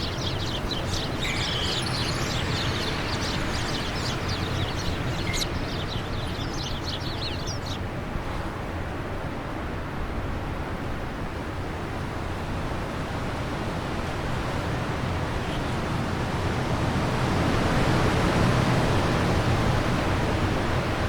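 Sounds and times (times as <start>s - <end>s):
wind blowing: 0.0s - 7.9s.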